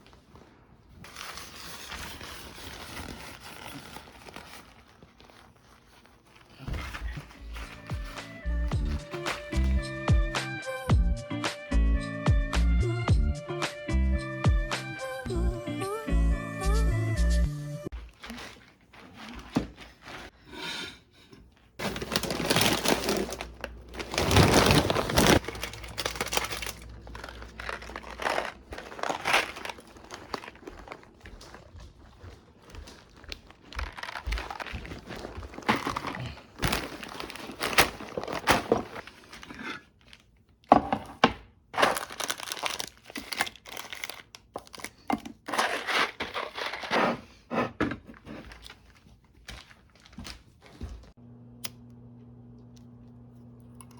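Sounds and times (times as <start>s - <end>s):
crinkly material rustling: 0.0s - 10.1s, 17.9s - 20.4s, 21.6s - 40.7s, 41.8s - 45.0s, 48.2s - 51.2s.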